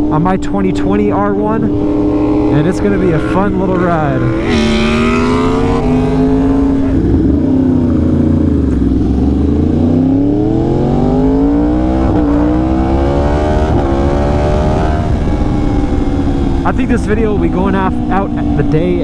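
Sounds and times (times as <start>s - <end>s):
motorcycle engine revving: 0.0s - 19.0s
quick gear upshifts: 0.0s - 19.0s.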